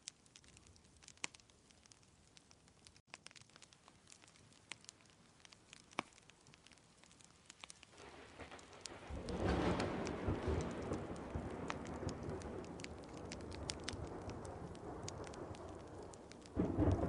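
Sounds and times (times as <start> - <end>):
rain: 0.0 - 17.0
wood fire crackling: 0.0 - 17.0
low rumble of thunder: 8.0 - 17.0.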